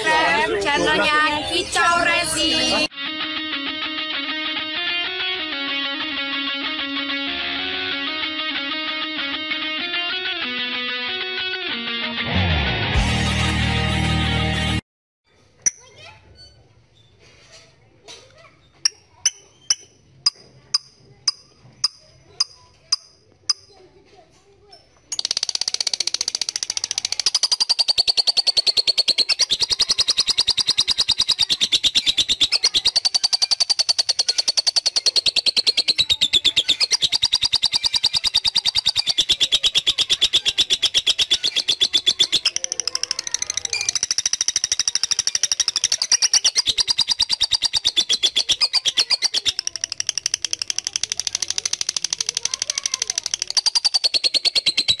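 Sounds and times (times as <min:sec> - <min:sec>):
lovebird chattering trill: 0:18.8 - 0:23.8, 0:25.1 - 0:55.0.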